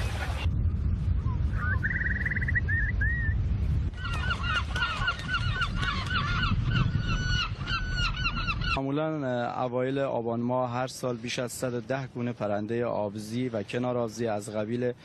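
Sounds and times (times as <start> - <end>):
steady low rumble: 0.0 - 4.0
waterbirds calling: 3.9 - 9.0.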